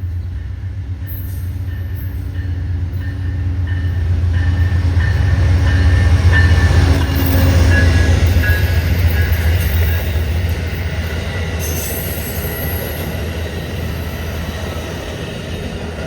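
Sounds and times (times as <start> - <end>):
diesel locomotive engine rumble: 0.0 - 16.0.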